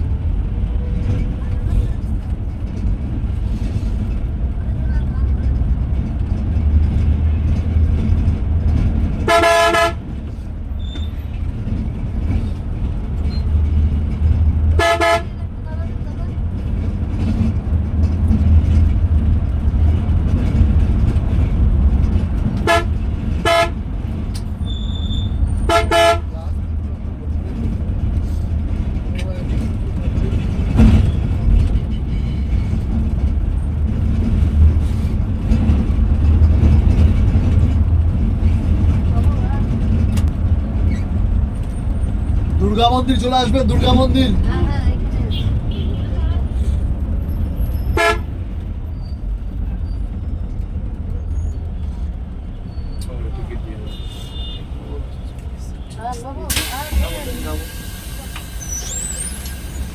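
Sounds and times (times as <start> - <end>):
bus engine drone: 0.0 - 59.9
road noise: 0.0 - 59.9
vehicle horn blaring: 9.2 - 10.1, 14.8 - 15.4, 22.6 - 23.9, 25.6 - 26.4, 45.3 - 46.2, 47.9 - 48.4, 53.8 - 54.8.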